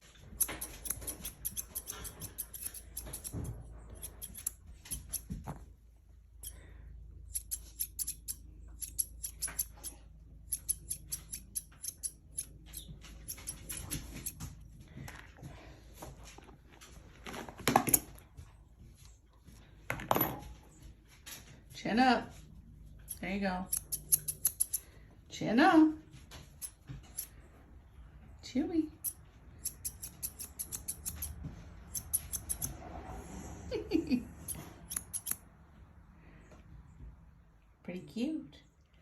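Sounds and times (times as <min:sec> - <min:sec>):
scissors snipping hair: 0:00.3 - 0:05.3, 0:07.3 - 0:14.4, 0:23.1 - 0:24.8, 0:29.0 - 0:32.8, 0:34.4 - 0:35.4.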